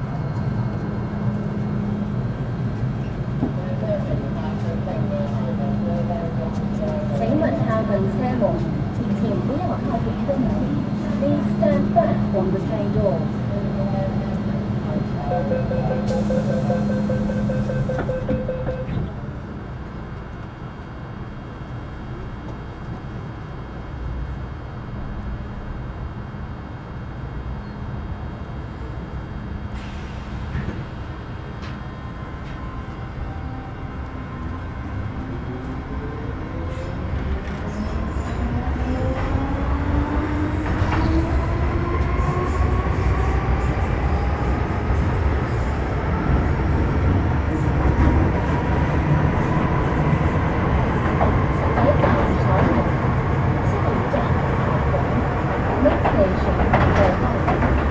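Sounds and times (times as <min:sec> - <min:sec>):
train rumbling on rails: 0:00.0 - 0:57.9
train wheels rumbling: 0:29.4 - 0:57.9.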